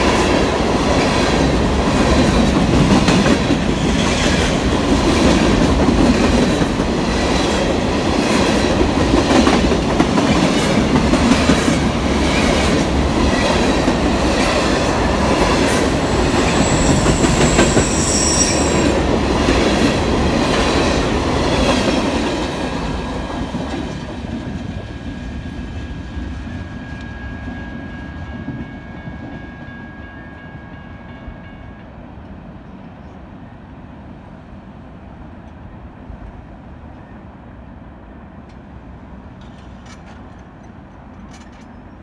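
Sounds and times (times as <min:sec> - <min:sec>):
coal train clattering rumble: 0:00.0 - 0:25.0
high wheel squeal: 0:16.0 - 0:19.0.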